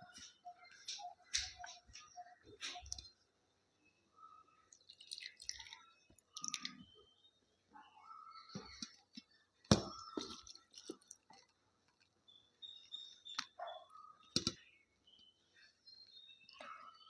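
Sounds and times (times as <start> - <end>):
person chewing wetly: 4.8 - 6.8.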